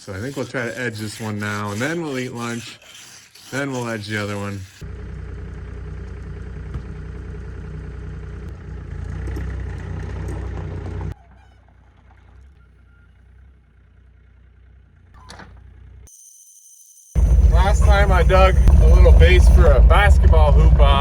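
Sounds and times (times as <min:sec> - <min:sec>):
engine humming: 0:04.8 - 0:16.1, 0:17.2 - 0:21.0.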